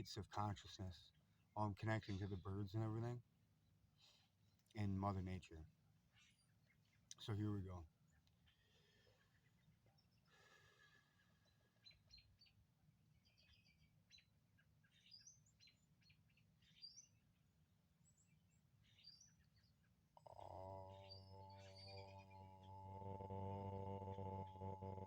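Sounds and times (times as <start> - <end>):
man chanting om: 0.0 - 1.0, 1.6 - 3.2, 20.2 - 25.0
faint songbird chirps: 0.0 - 25.0.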